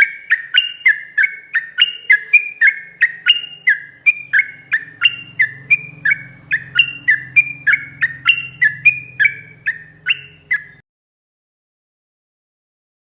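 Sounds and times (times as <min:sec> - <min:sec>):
bulbul singing sharp notes: 0:00.0 - 0:10.8
faint low hum: 0:00.0 - 0:10.8.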